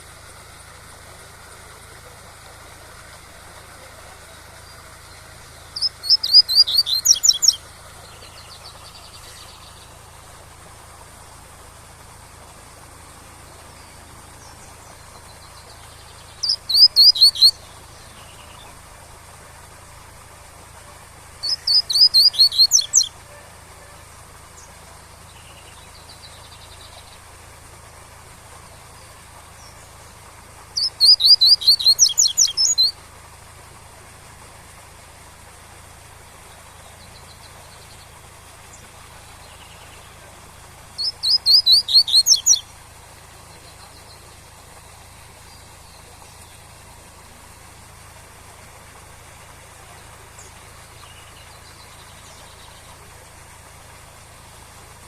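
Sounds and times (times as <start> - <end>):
faint waterfall hiss: 0.0 - 55.0
bird singing high repeated notes: 5.8 - 9.6, 15.3 - 18.6, 21.4 - 23.1, 30.7 - 32.9, 41.0 - 42.7.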